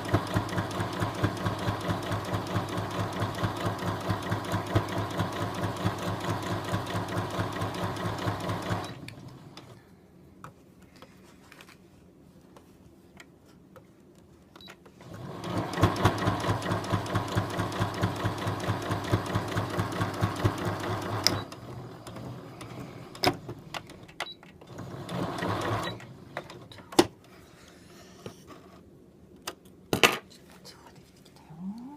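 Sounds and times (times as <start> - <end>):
sewing machine stitching: 0.0 - 9.8, 15.0 - 26.7.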